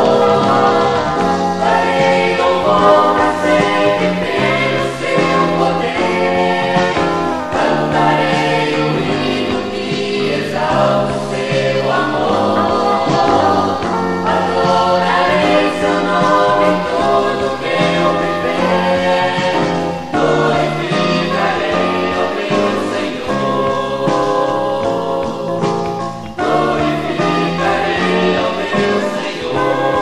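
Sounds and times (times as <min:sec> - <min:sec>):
choir singing gospel: 0:00.0 - 0:30.0
instrumental backing: 0:00.0 - 0:30.0.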